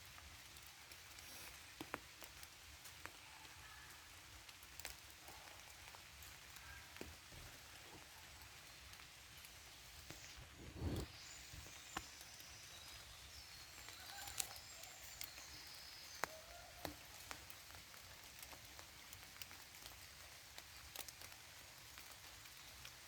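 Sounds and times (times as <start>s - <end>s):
light rain hiss: 0.0s - 23.0s
rain drop ticks: 0.1s - 10.3s, 11.2s - 23.0s
faint bird calls: 5.2s - 8.8s, 9.7s - 17.6s.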